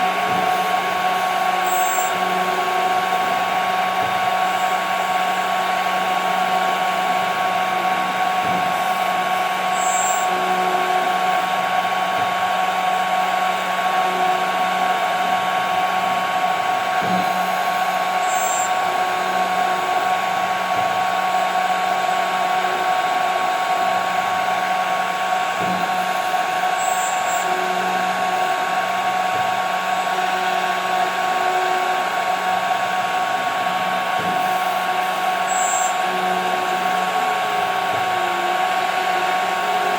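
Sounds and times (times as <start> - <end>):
router spindle whine: 0.0 - 39.9
faint high chirp: 1.6 - 2.1, 9.8 - 10.2, 18.3 - 18.7.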